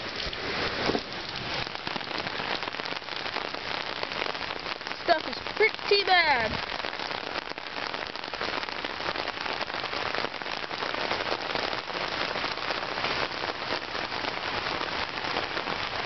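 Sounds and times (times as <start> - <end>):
close raindrop impacts: 0.0 - 16.0
heavy rain hissing: 0.0 - 16.0.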